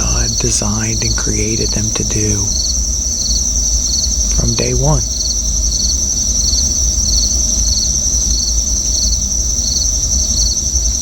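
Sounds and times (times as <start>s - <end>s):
steady low rumble: 0.0s - 2.8s
insect high steady trill: 0.0s - 11.0s
insect pulsed call: 0.0s - 11.0s.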